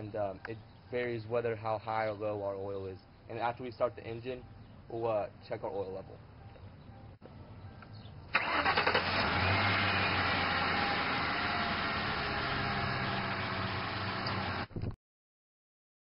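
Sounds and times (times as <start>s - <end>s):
car starter cranking: 8.3s - 13.2s
car engine idling: 8.3s - 14.7s.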